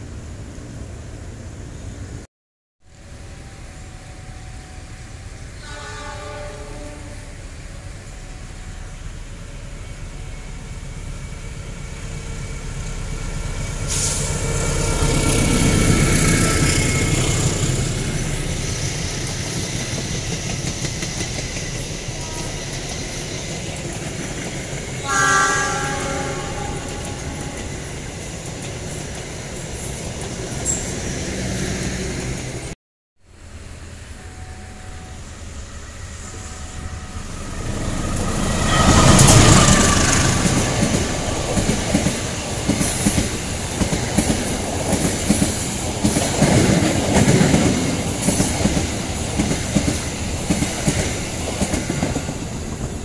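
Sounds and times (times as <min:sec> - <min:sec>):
passenger train rumbling past: 0:00.0 - 0:02.3, 0:02.9 - 0:53.0
train horn: 0:03.4 - 0:09.1, 0:22.0 - 0:22.9, 0:25.0 - 0:28.0, 0:34.2 - 0:41.6.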